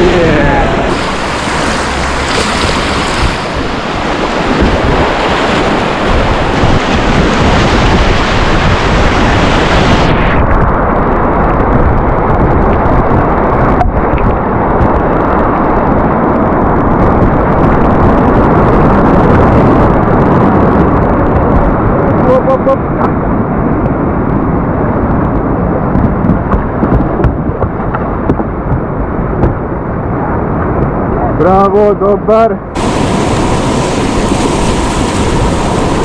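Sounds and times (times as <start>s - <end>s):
whitewater rapids rushing: 0.0s - 10.3s, 32.8s - 36.0s
wind buffeting microphone: 0.0s - 36.0s.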